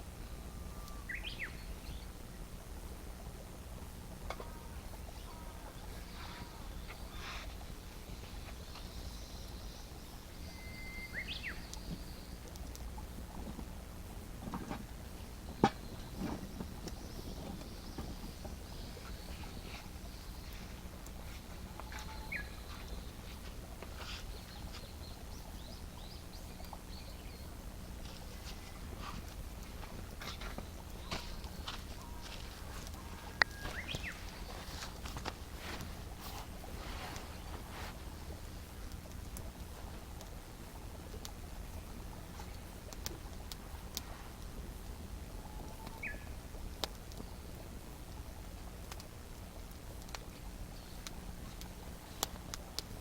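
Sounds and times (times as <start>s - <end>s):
campfire crackling: 0.0s - 53.0s
low steady hum: 0.0s - 53.0s
bird chirps: 0.4s - 2.1s, 4.4s - 12.4s, 21.3s - 28.8s, 30.4s - 34.9s, 45.6s - 46.4s.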